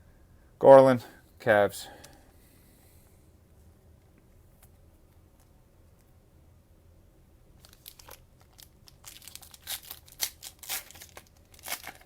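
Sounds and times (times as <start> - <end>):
cellophane tearing and crinkling: 7.6 - 12.0.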